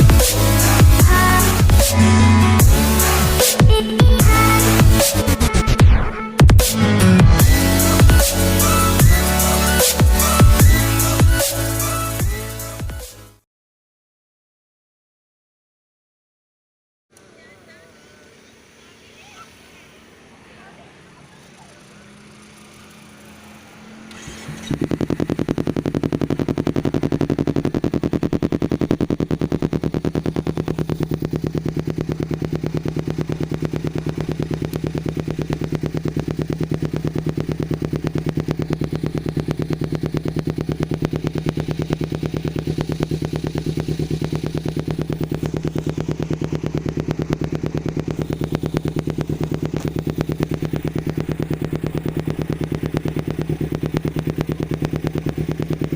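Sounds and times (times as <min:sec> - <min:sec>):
motorcycle engine idling: 0:00.0 - 0:05.4, 0:06.4 - 0:12.9, 0:17.2 - 0:55.9.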